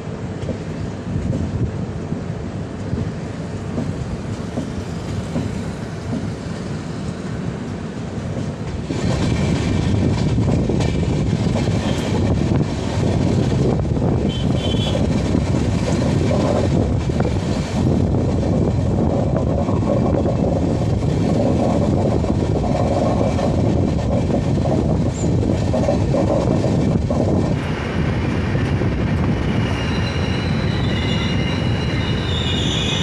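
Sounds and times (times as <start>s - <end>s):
train wheels rumbling on track: 0.0s - 33.0s.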